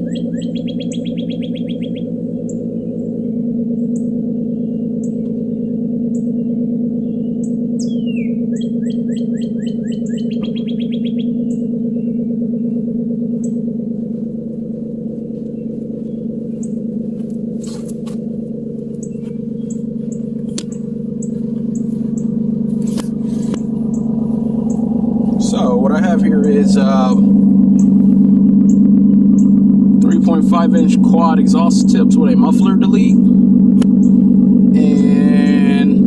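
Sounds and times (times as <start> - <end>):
birds chirping: 0.0 - 36.0
car engine idling: 0.0 - 36.0.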